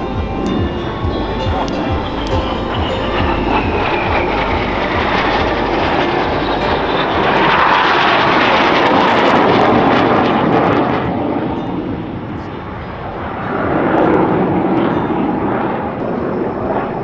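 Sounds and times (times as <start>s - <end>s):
faint falling jet whine: 0.0s - 10.4s
jet aircraft flying past: 0.0s - 17.0s.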